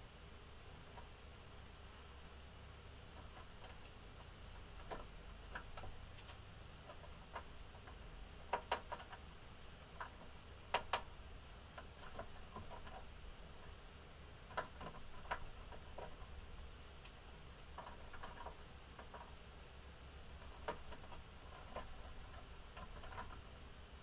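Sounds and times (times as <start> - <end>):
faint low hum: 0.0 - 24.0
budgerigars clicking and tapping: 3.1 - 13.8, 20.3 - 23.4.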